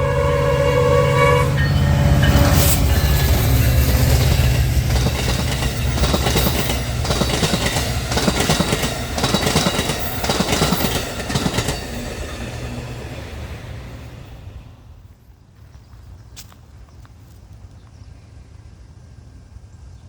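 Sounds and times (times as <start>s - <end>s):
locomotive rumble: 0.0s - 15.7s
train wheels clacking over rail joints: 1.6s - 14.1s.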